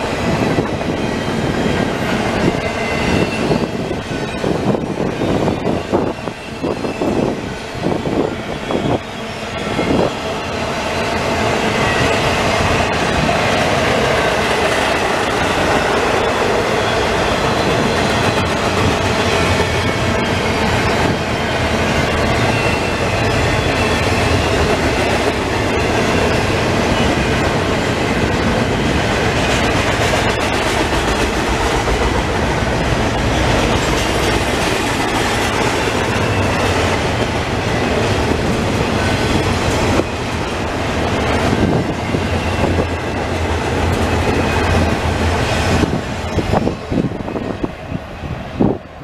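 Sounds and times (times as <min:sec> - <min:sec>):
freight train rolling past: 0:00.0 - 0:49.0
wheels clattering on rails: 0:09.8 - 0:47.8.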